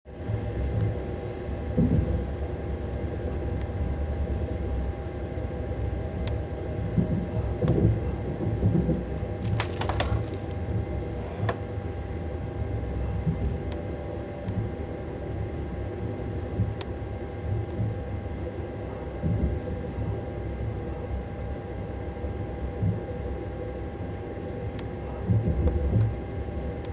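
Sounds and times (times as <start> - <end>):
electrical hum: 0.1 - 26.9.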